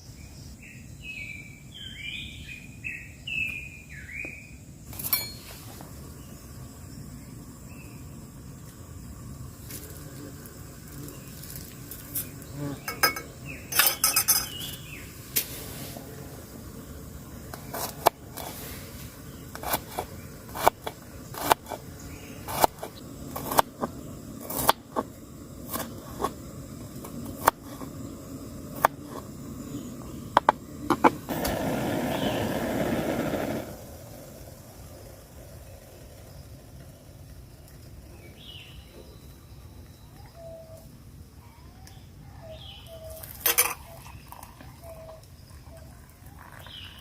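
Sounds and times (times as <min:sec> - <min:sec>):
camp cookware clinking: 0:04.9 - 0:05.8, 0:11.4 - 0:15.5, 0:19.4 - 0:31.3, 0:43.1 - 0:47.0
steady rushing noise: 0:29.4 - 0:36.5.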